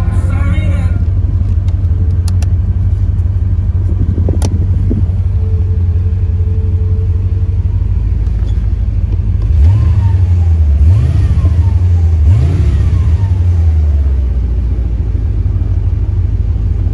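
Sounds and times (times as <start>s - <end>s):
car engine low rumble: 0.0s - 16.9s
sharp clicks: 1.4s - 2.5s.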